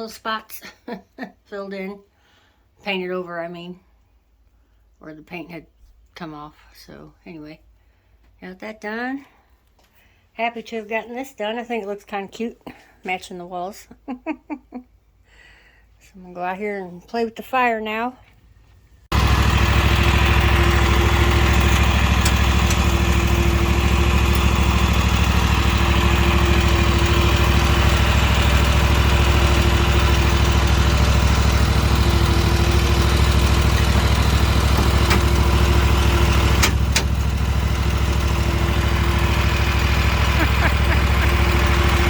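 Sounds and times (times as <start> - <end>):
motor engine idling: 19.1 - 42.0.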